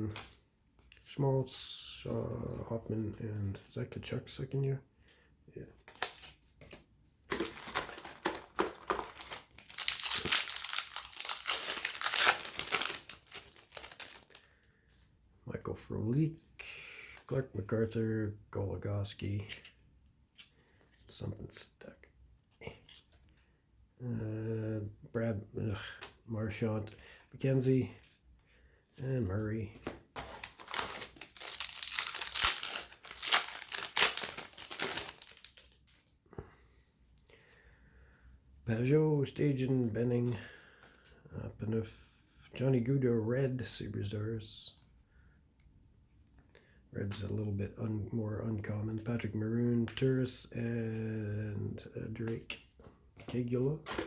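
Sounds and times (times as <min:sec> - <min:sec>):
foil wrapper crinkling: 0:07.3 - 0:14.5, 0:30.3 - 0:36.1.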